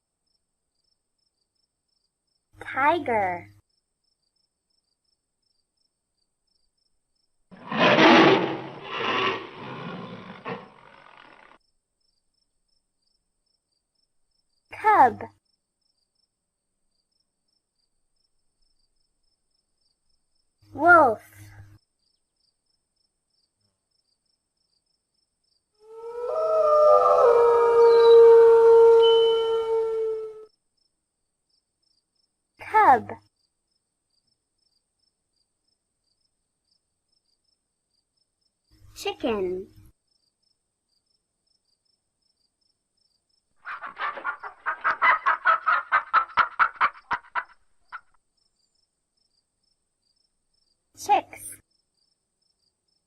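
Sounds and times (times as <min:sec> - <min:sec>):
wolf howling: 0:25.8 - 0:30.5
chicken clucking: 0:43.7 - 0:47.5.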